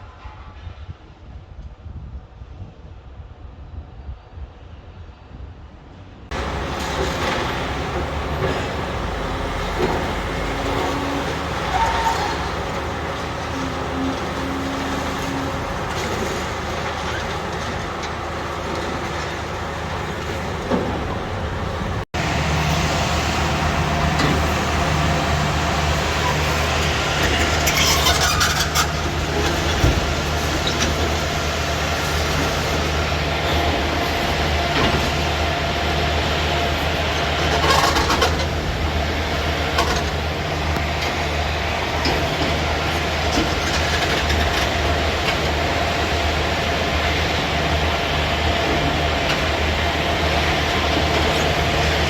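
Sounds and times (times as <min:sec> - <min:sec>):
demolition machinery diesel drone: 0:06.3 - 0:52.0.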